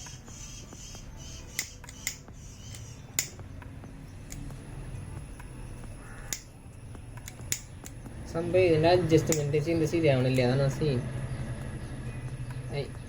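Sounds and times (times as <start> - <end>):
low steady hum: 0.0 - 13.0
sharp clicks: 1.5 - 3.4, 4.3 - 4.5.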